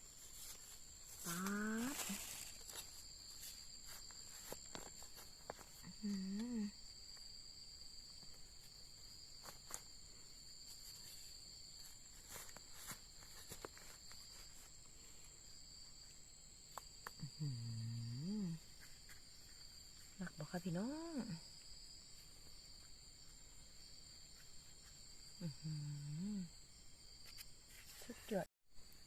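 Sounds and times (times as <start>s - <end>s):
rustling through undergrowth: 0.0s - 6.0s, 8.0s - 16.2s
high insect drone: 0.0s - 29.0s.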